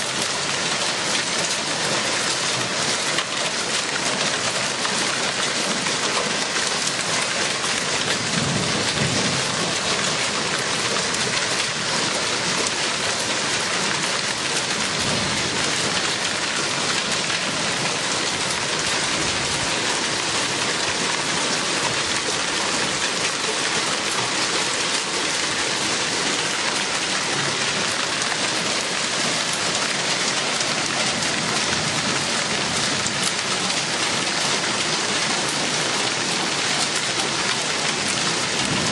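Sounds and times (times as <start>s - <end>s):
heavy rain pouring: 0.0s - 38.9s
faint rumbles of thunder: 38.6s - 38.9s.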